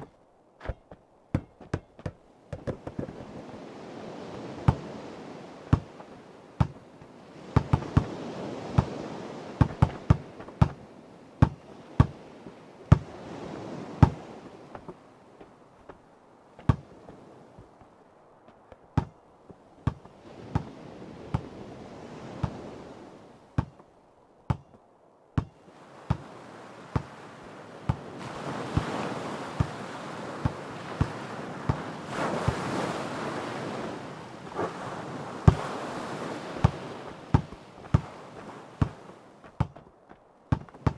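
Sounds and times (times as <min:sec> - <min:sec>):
ocean surf: 0:00.0 - 0:40.9
basketball bouncing: 0:00.6 - 0:03.1, 0:19.0 - 0:19.2, 0:23.6 - 0:23.8, 0:24.5 - 0:24.8, 0:40.5 - 0:40.9.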